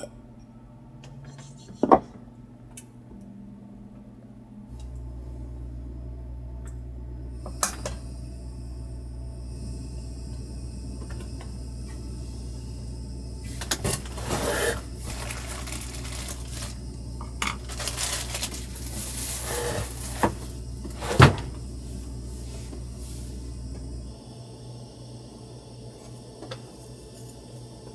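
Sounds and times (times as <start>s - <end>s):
steady low hum: 0.0s - 27.9s
rustling: 14.0s - 16.8s, 17.5s - 20.6s.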